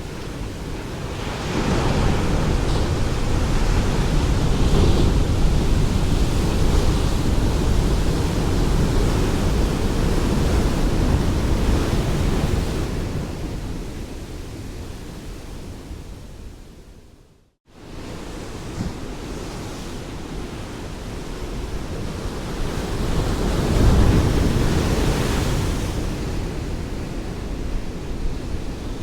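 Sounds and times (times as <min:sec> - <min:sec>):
ocean waves breaking: 0:00.0 - 0:13.6.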